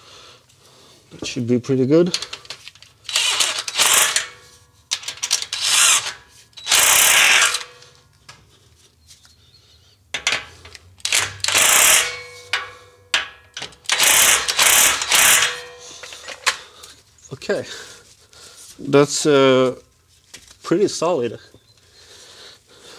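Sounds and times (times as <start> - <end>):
ratchet wrench clicking: 3.1 - 7.9, 10.2 - 16.6.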